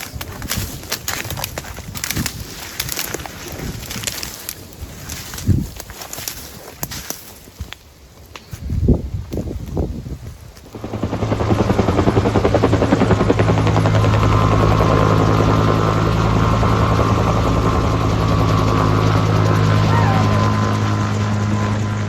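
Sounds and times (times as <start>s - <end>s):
helicopter rotor pulsing: 10.7s - 22.0s.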